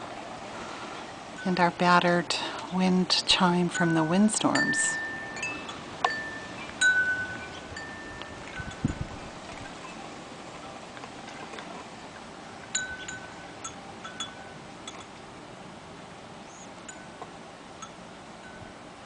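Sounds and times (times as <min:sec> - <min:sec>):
faint outdoor air hush: 0:00.0 - 0:19.0
metal wind chime ringing: 0:03.7 - 0:10.1, 0:12.7 - 0:15.1.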